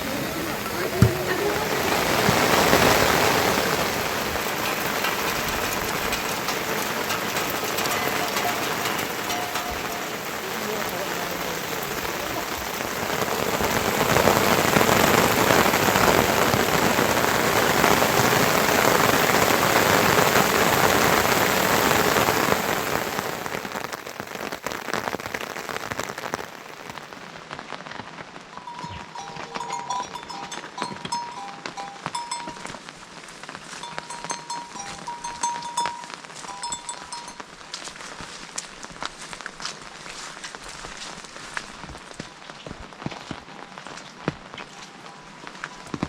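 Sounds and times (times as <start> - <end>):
heavy rain pouring: 0.0 - 46.0
short high music tones: 7.9 - 10.3.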